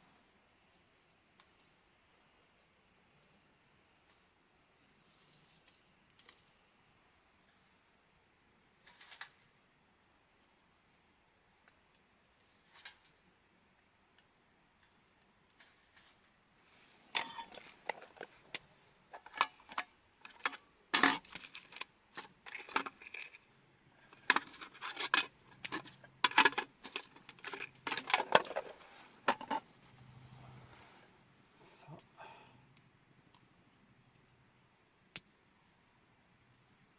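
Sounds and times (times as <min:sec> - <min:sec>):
metallic clinks and rattles: 0:24.1 - 0:28.7.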